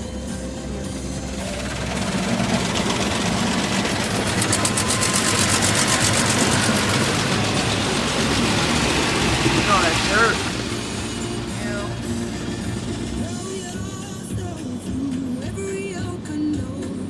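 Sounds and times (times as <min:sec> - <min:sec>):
car engine idling: 0:00.0 - 0:17.0
car wash machinery rushing: 0:00.0 - 0:17.0
fast even pulsing: 0:00.0 - 0:17.0.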